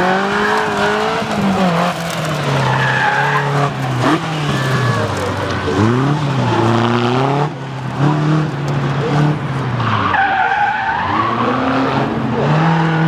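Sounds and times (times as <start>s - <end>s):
car engine revving: 0.0s - 13.0s
tyres squealing: 0.1s - 6.7s.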